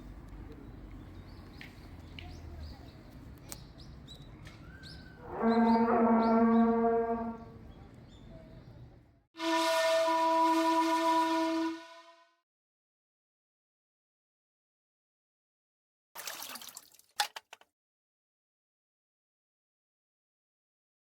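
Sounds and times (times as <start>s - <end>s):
horn-like tone: 5.2s - 7.6s, 9.4s - 12.4s.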